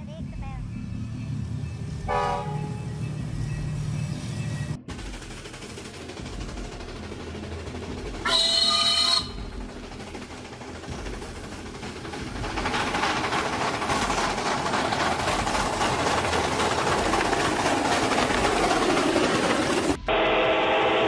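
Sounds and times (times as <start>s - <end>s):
passing train rushing: 0.1s - 21.0s
train horn blast: 2.1s - 3.0s, 8.2s - 9.4s, 20.0s - 21.0s.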